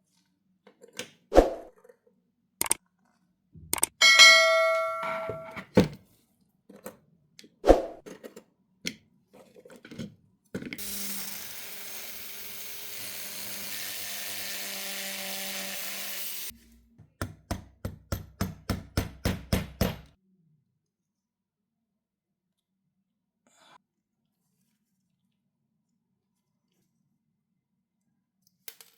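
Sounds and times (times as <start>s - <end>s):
knocks on metal parts: 3.7s - 5.9s, 17.2s - 20.1s
machine hiss: 10.8s - 16.5s.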